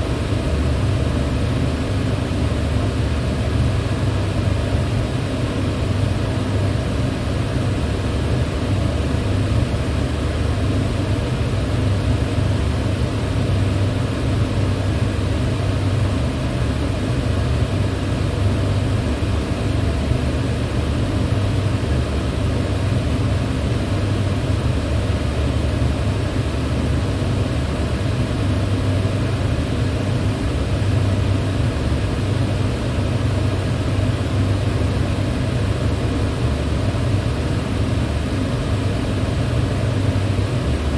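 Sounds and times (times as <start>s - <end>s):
electric fan running: 0.0s - 40.9s.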